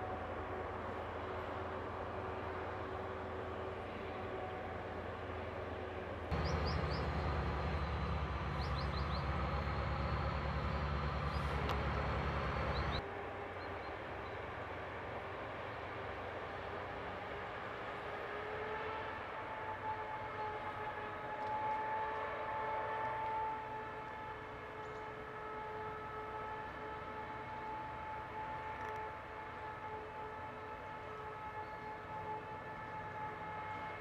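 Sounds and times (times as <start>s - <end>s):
diesel machinery engine rumble: 0.0s - 13.0s
steady machine whine: 6.3s - 15.2s.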